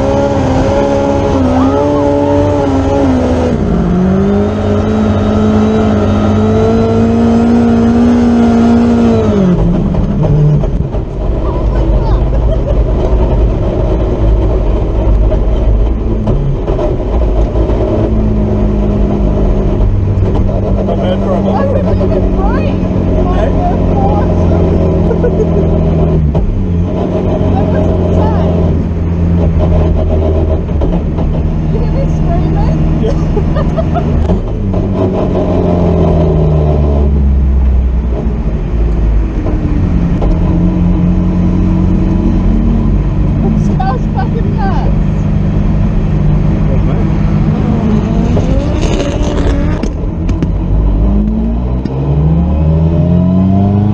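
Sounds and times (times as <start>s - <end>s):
car engine running hard: 0.0s - 53.9s.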